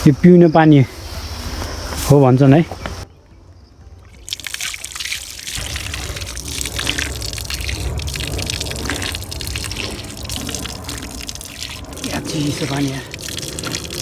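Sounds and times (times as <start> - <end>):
tap water running and splashing: 4.1 - 14.0.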